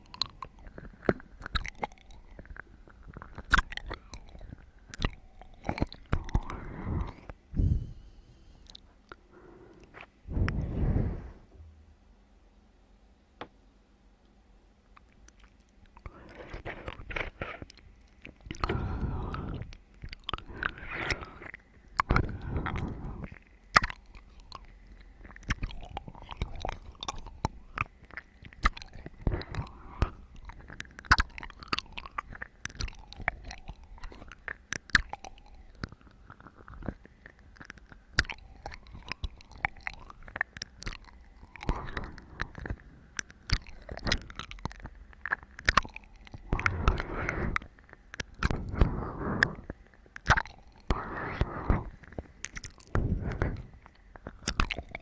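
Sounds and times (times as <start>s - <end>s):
chewing with clicks and crunches: 0.0s - 10.8s, 14.8s - 55.0s.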